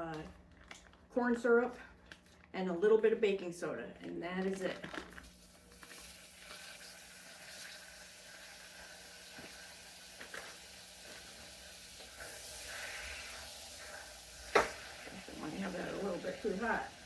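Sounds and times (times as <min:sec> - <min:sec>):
butter sizzling in a pan: 0:05.2 - 0:17.0.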